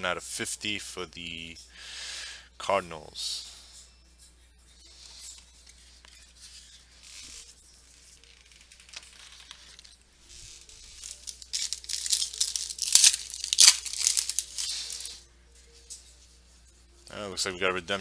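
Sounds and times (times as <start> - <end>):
wrapper rustling: 6.0 - 15.2
wrapper tearing and crinkling: 8.2 - 15.2.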